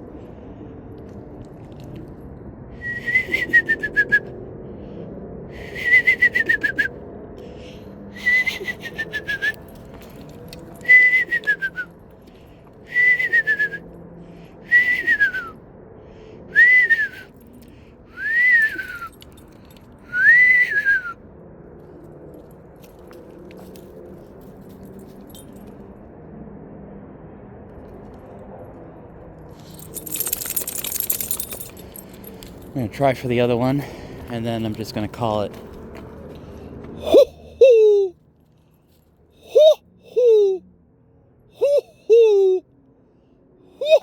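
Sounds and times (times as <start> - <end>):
person whistling owl calls: 2.8 - 4.3, 5.6 - 7.0, 8.1 - 9.7, 10.8 - 11.9, 12.9 - 13.8, 14.7 - 15.6, 16.5 - 17.3, 18.2 - 19.1, 20.1 - 21.2, 37.0 - 38.1, 39.4 - 40.6, 41.6 - 42.6, 43.7 - 44.0.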